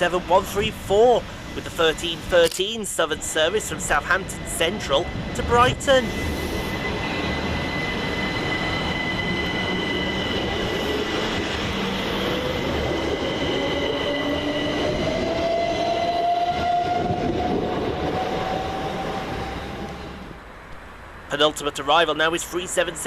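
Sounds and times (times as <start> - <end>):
steady high-pitched tones: 0.0 - 20.4
rumble of train wheels: 0.0 - 21.3
train traction motors whining: 0.1 - 20.4.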